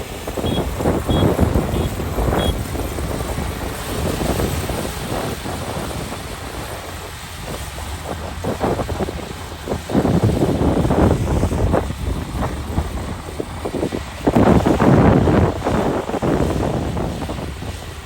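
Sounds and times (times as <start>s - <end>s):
combine harvester running: 0.0s - 18.0s
wind buffeting microphone: 0.0s - 18.0s
short high beep: 0.4s - 2.6s.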